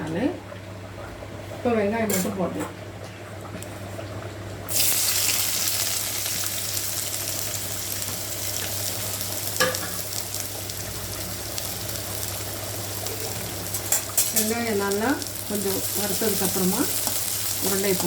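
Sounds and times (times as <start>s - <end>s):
onions sizzling in oil: 4.7s - 18.0s.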